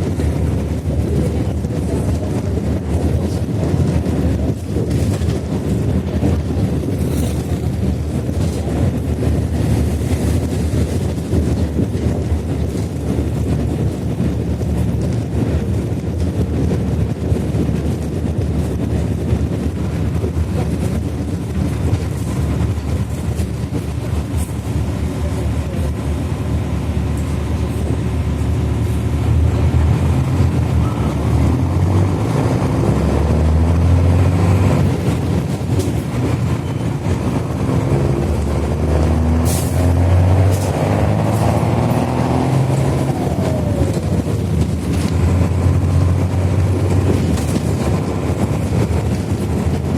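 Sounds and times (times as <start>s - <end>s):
bus diesel engine revving: 20.2s - 49.9s.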